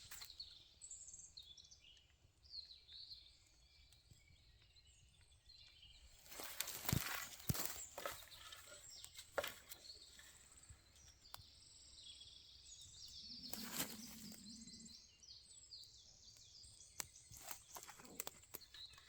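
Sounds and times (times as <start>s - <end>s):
faint bird song: 0.0s - 19.0s
rustle: 6.2s - 11.4s, 13.2s - 14.9s.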